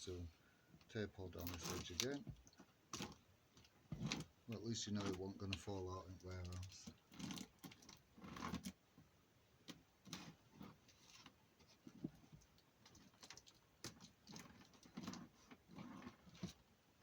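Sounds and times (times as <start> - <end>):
packing tape scratching and clicking: 1.4 - 2.2.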